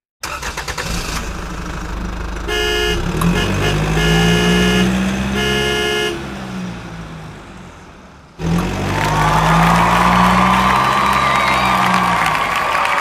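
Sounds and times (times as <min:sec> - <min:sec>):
engine running: 0:00.2 - 0:12.9
vehicle horn toots: 0:02.4 - 0:06.6.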